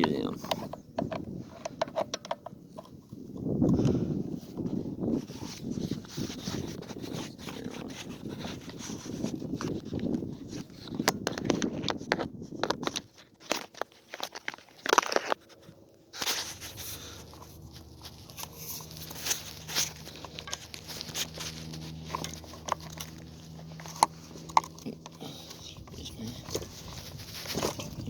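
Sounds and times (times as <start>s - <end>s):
metal tools clicking and scraping: 12.9s - 28.0s
steady low hum: 15.4s - 28.0s.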